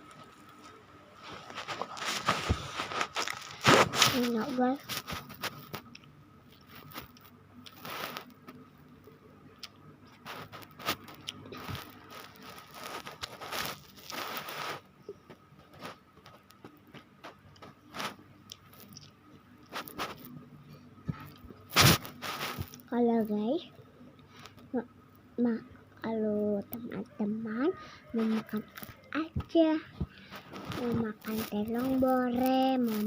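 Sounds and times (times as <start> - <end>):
crunchy chewing: 0.0 - 9.0, 9.6 - 22.9, 30.0 - 33.0.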